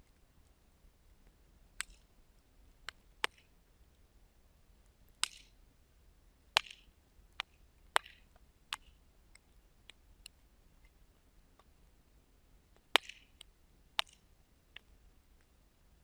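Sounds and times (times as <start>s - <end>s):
sharp pops from burning wood: 1.8s - 2.0s, 2.8s - 3.5s, 5.2s - 5.6s, 6.6s - 10.4s, 12.8s - 14.2s.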